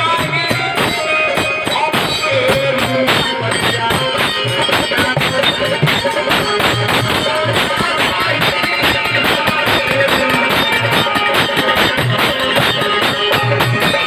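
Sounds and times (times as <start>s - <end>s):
percussion strokes: 0.0s - 14.0s.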